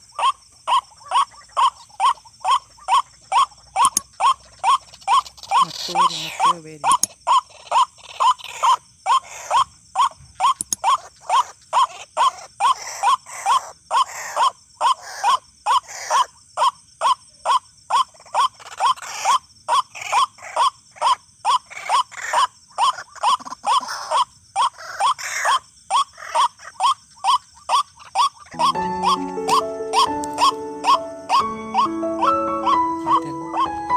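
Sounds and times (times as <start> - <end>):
waterhen harsh calls: 0.0 - 33.9.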